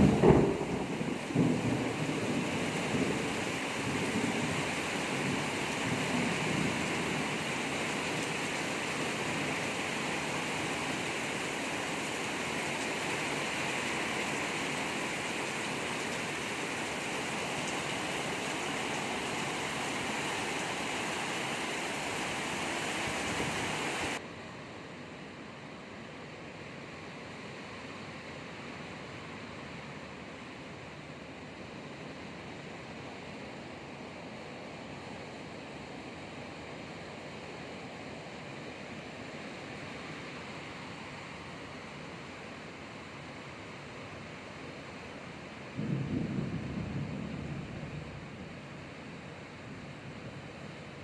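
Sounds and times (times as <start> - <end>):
thunder rumble: 0.0 - 7.4, 45.7 - 49.1
heavy rain pouring: 0.0 - 24.2, 32.1 - 51.0.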